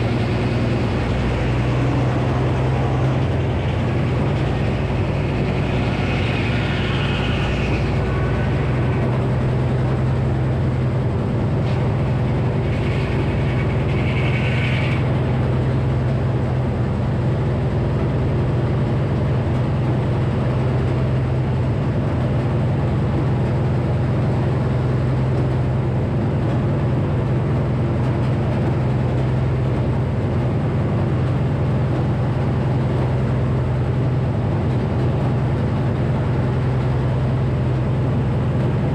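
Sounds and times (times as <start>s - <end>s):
saw whine: 0.0s - 16.8s
sawmill low hum: 0.0s - 38.9s.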